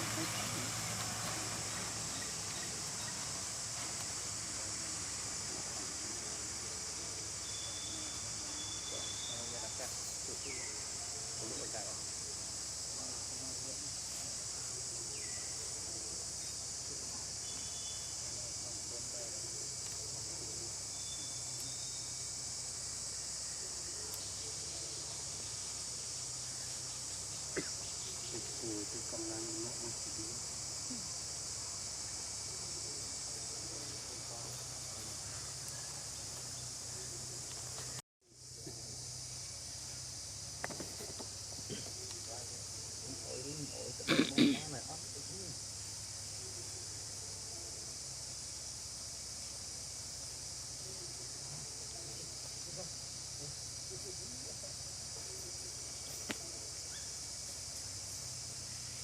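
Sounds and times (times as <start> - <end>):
insect chorus: 0.0 - 59.0.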